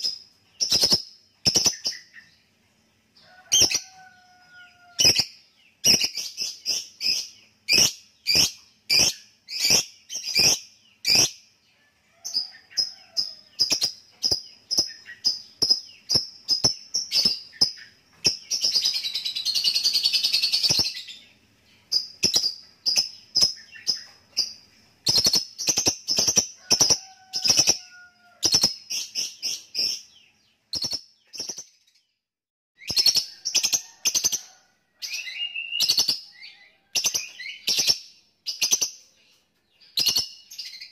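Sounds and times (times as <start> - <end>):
lovebird chirping: 0.0 - 11.5, 12.1 - 32.2, 32.8 - 40.9.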